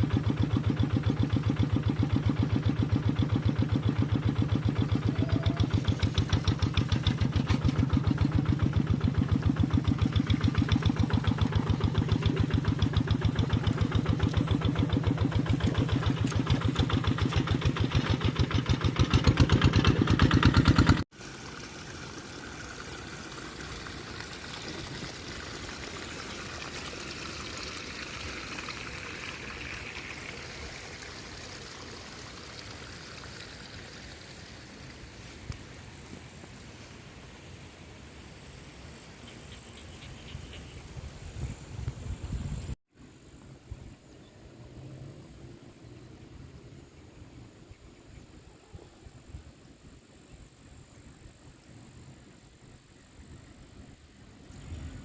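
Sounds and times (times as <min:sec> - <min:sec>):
tractor engine running: 0:00.0 - 0:36.6.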